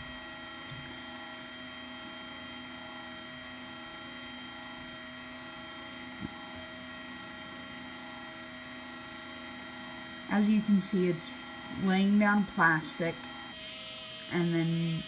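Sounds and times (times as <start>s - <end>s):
small electric motors humming: 0.0s - 15.0s.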